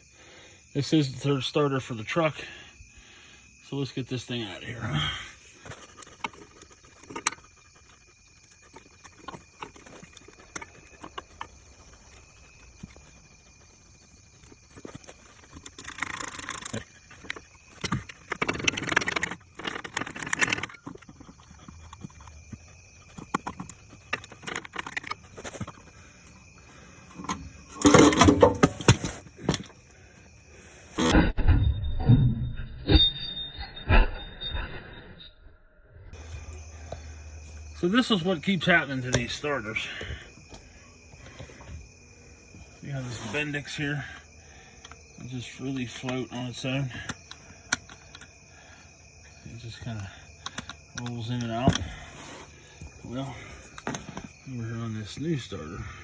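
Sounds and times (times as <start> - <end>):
metal tool clicks and clinks: 27.2 - 29.6.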